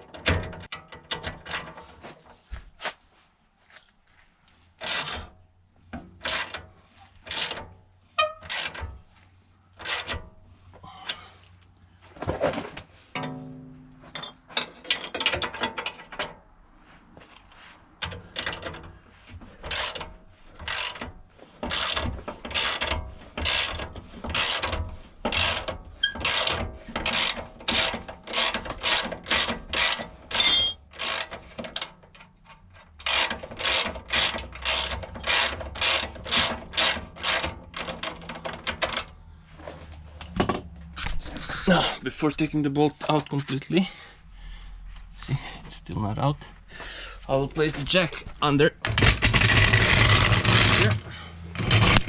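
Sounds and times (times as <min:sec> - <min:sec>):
ratchet wrench clicking: 0:09.8 - 0:10.2, 0:19.7 - 0:21.0, 0:21.6 - 0:31.3, 0:33.0 - 0:38.7.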